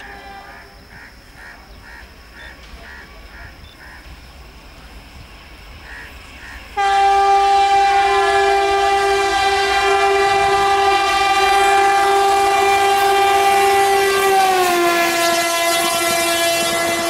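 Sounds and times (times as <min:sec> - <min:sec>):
locomotive horn blast: 0:06.8 - 0:17.0.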